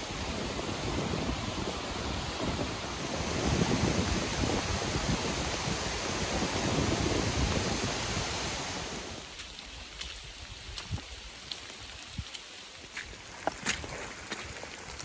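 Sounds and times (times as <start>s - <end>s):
heavy rain falling: 0.0s - 15.0s
wind gusting through trees: 0.0s - 15.0s.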